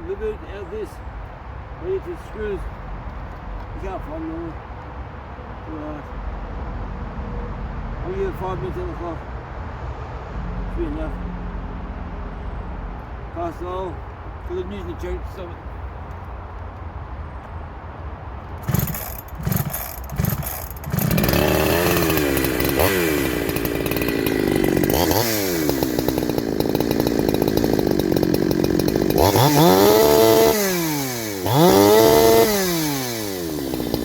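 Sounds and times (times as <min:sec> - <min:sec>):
chainsaw engine revving: 0:18.6 - 0:34.0.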